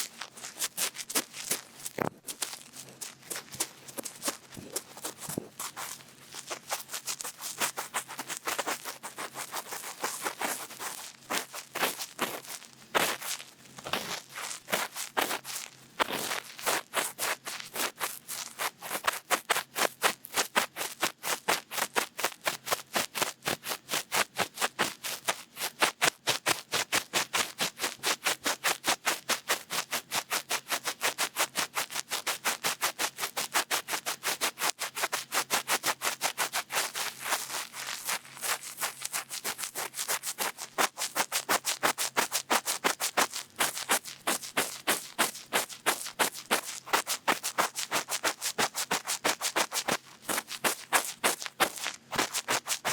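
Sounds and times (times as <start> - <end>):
cotton bud scratching in ear: 33.0 - 52.9.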